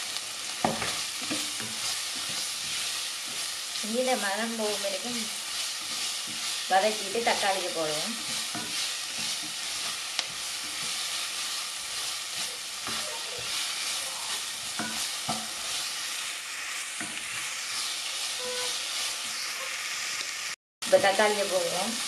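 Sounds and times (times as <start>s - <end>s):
food sizzling in oil: 0.0s - 22.0s
spatula scraping and tapping pan: 0.6s - 3.6s, 5.6s - 7.5s, 8.1s - 15.9s, 17.0s - 17.5s, 18.4s - 19.4s.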